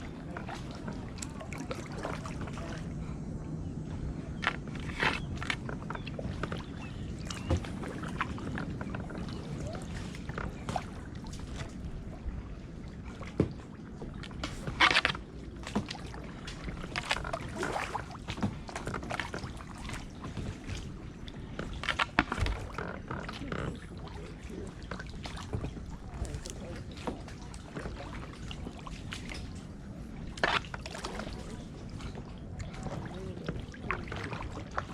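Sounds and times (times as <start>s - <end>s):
paddle dipping and dripping: 0.0s - 34.9s
water splash: 14.2s - 20.9s.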